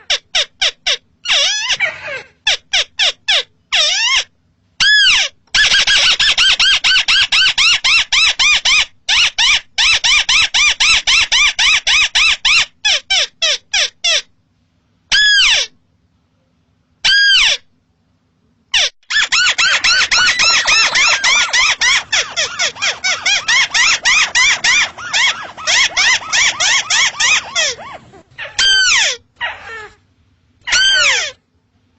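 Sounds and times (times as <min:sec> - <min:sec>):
crake whistled calls: 0:19.1 - 0:27.9.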